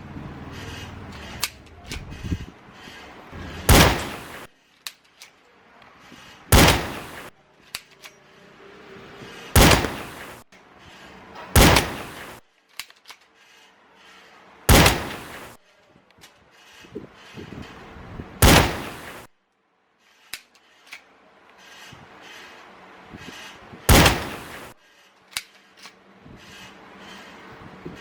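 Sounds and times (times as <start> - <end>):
airsoft pistol shots: 3.6 - 4.5, 6.5 - 7.3, 9.6 - 10.4, 11.6 - 12.4, 14.7 - 15.6, 18.4 - 19.3, 23.9 - 24.7.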